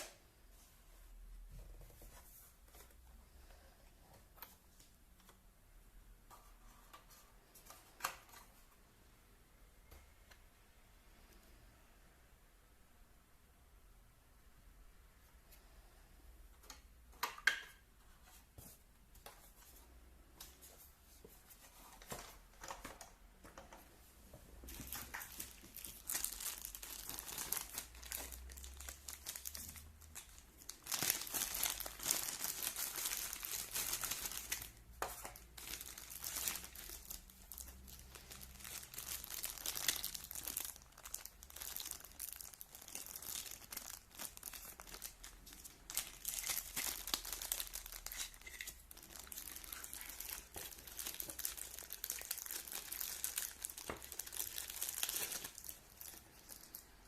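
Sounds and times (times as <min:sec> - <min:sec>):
packaging crinkling and tearing: 0:24.7 - 0:57.0.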